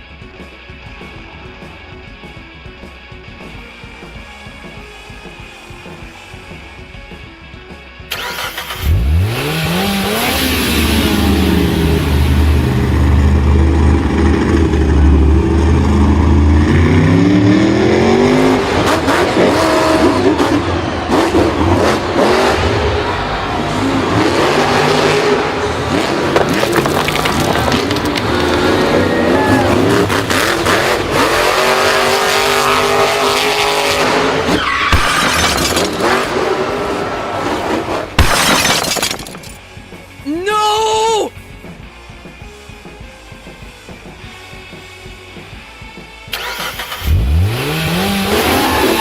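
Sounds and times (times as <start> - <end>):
vehicle engine revving: 8.1 - 38.2, 45.8 - 49.0
tyres squealing and skidding: 18.8 - 39.1, 48.0 - 49.0.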